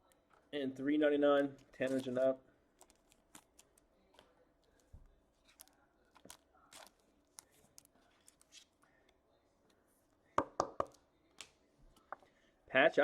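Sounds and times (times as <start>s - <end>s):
trading cards rustling: 1.3s - 9.2s
packaging crinkling: 1.5s - 8.8s.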